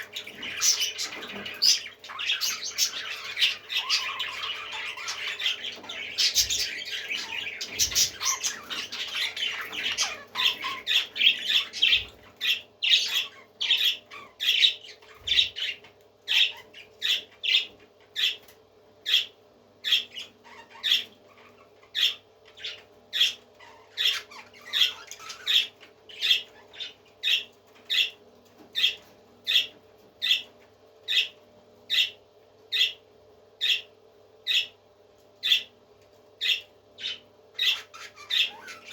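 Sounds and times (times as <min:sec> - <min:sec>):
parrot squawking: 0:00.0 - 0:18.4, 0:19.0 - 0:28.2, 0:36.4 - 0:38.9
faint steady hum: 0:00.0 - 0:38.9.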